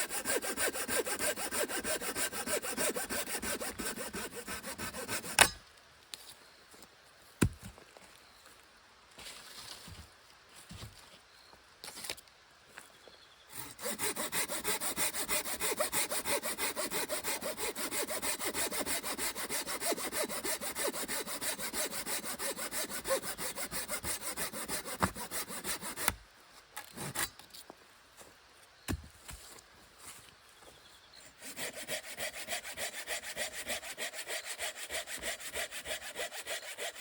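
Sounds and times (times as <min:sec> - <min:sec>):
hand saw cutting wood: 0:00.0 - 0:05.6, 0:13.5 - 0:26.2, 0:26.9 - 0:27.4, 0:31.4 - 0:37.0.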